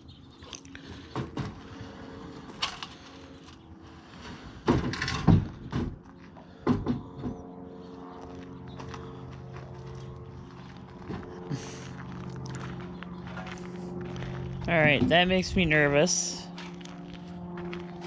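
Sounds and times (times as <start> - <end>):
low mechanical hum: 0.0 - 18.0
wooden knocks of lumber: 6.6 - 7.4.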